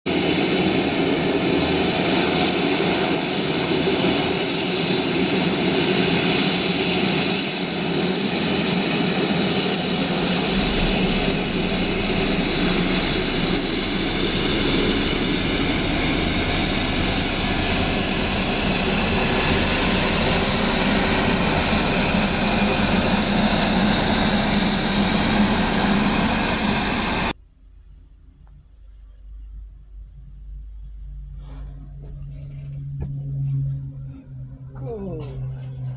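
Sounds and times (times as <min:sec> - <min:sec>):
high engine whine: 0:00.1 - 0:27.4
turboprop engines running: 0:00.1 - 0:27.4.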